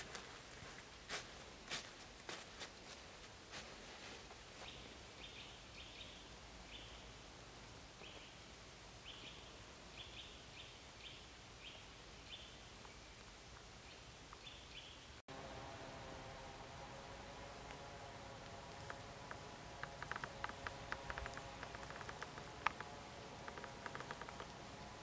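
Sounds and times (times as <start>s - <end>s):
steady multi-pitched hum: 15.3s - 25.0s.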